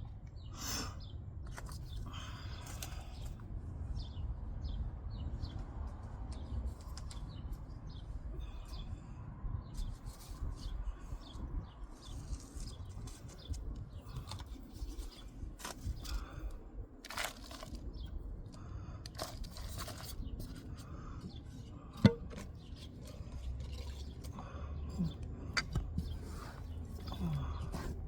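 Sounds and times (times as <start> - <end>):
hands and tool scratching soil: 9.8 - 16.4, 19.1 - 21.4, 22.6 - 24.3, 25.0 - 28.0.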